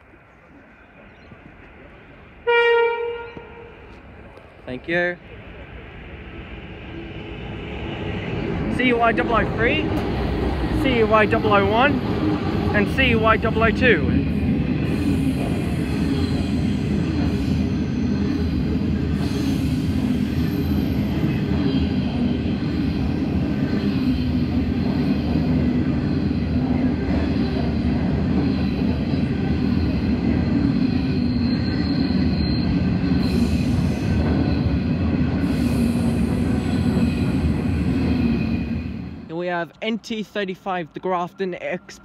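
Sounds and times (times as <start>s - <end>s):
faint high wheel squeal: 28.5s - 37.4s.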